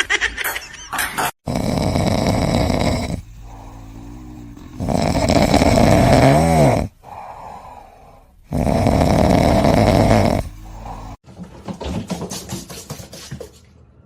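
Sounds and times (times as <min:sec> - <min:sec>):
pet snoring loudly: 0:01.4 - 0:11.2.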